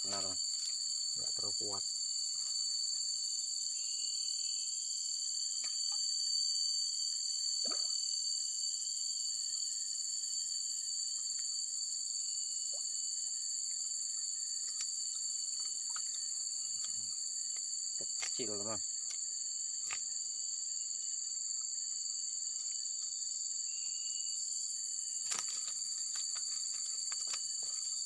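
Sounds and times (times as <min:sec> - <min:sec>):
insects shrilling: 0:14.1 - 0:21.2, 0:22.6 - 0:28.0.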